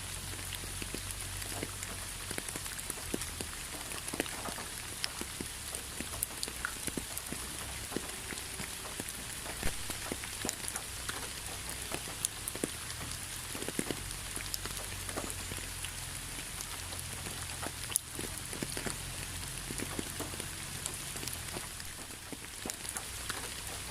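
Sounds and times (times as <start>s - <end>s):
rain falling: 0.0s - 23.9s
drops ticking on a surface: 0.2s - 23.9s.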